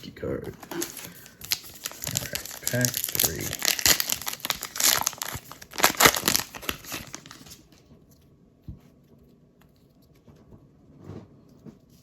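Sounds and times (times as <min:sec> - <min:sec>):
wrapper tearing and crinkling: 0:00.4 - 0:07.7.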